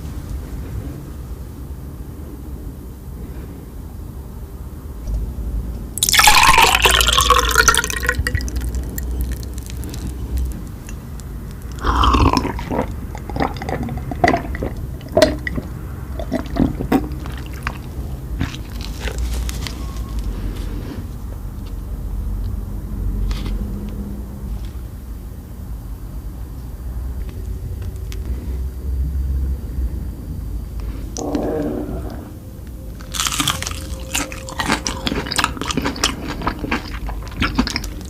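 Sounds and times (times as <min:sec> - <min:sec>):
sticky chewing clicks: 0:08.0 - 0:19.2, 0:33.0 - 0:38.0.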